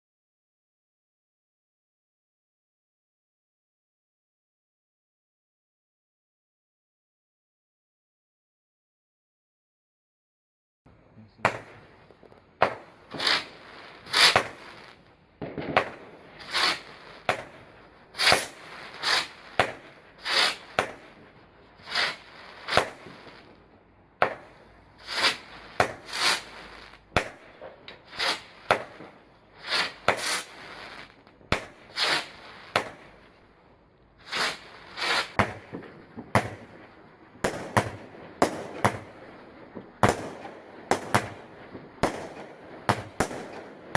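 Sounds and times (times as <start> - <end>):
fireworks bangs with echo: 11.3 - 23.6, 24.2 - 33.4, 34.2 - 43.9.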